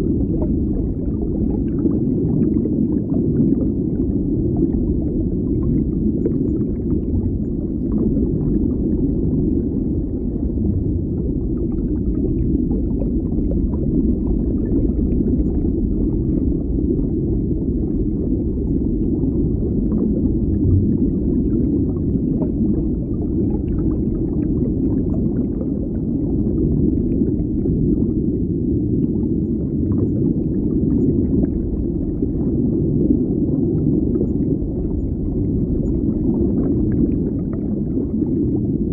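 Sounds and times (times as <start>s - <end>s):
faint bubbling ticks: 0.0s - 9.4s
underwater rumbling wash: 0.0s - 38.9s.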